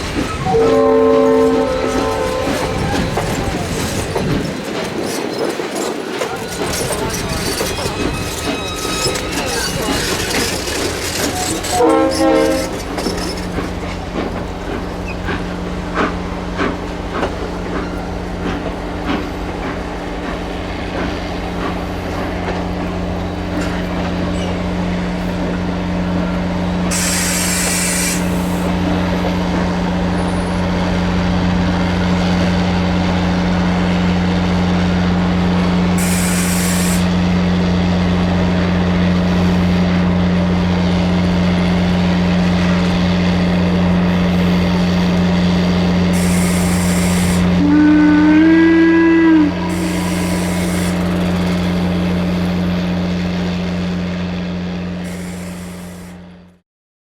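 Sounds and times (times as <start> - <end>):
train toot: 0.0 - 4.1, 6.1 - 19.7, 20.9 - 31.2, 34.9 - 53.0, 54.8 - 56.3
train running: 0.0 - 56.6
hissing bursts: 26.9 - 28.7, 36.0 - 37.2, 46.1 - 47.6, 49.7 - 52.4, 55.0 - 56.2.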